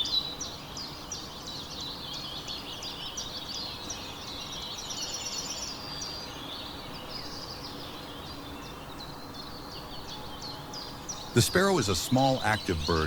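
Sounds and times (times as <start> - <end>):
songbirds chirping: 0.0 - 13.0
steady background hiss: 10.8 - 13.0.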